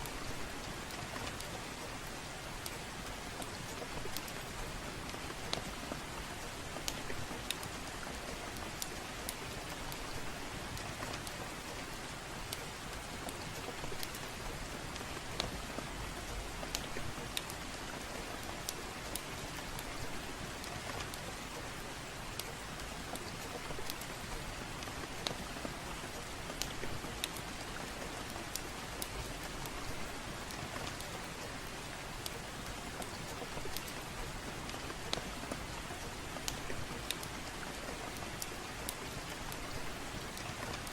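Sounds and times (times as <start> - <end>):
gentle rain: 0.0 - 40.9
wood fire crackling: 0.1 - 40.9.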